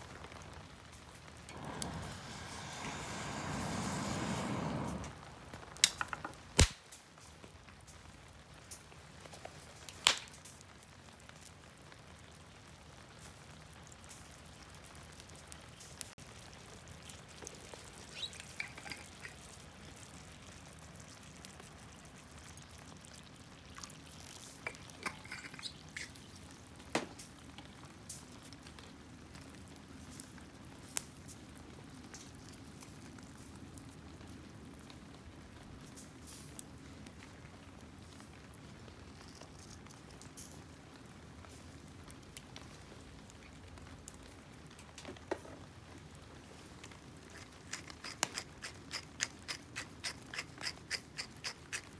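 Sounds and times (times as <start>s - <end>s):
wood fire popping: 0.0s - 10.6s, 14.0s - 19.9s, 41.4s - 51.9s
liquid dripping: 17.9s - 19.6s.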